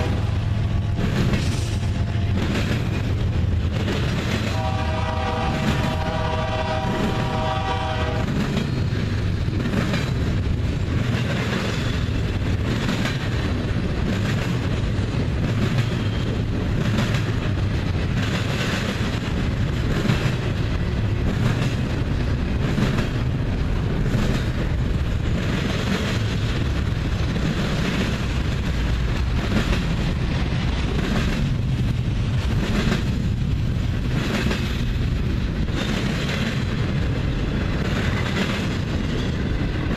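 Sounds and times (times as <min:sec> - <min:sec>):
locomotive horn: 0:00.0 - 0:00.4, 0:04.5 - 0:08.4
train wheels rumbling and clacking: 0:00.0 - 0:39.9.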